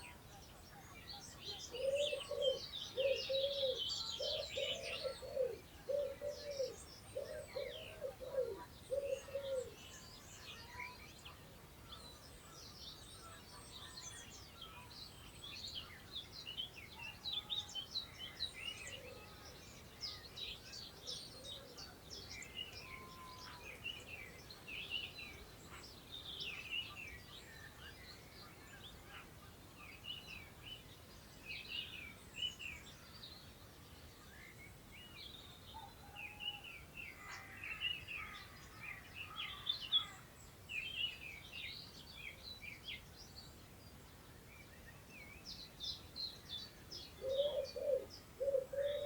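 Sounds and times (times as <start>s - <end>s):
songbirds singing and chirping: 0.0s - 49.0s
wind through long grass: 0.0s - 49.0s
pigeon cooing: 1.7s - 9.8s, 47.2s - 49.0s.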